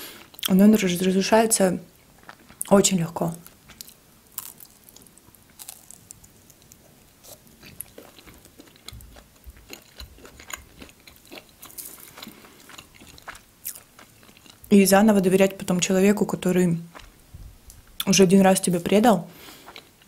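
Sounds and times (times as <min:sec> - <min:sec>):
chewing with crunches: 0:02.1 - 0:02.7, 0:03.3 - 0:14.7, 0:16.8 - 0:17.2, 0:19.4 - 0:20.0.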